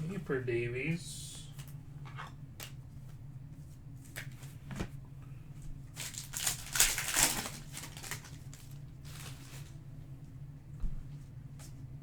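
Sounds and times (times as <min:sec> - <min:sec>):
wrapper tearing and crinkling: 0:06.0 - 0:09.7.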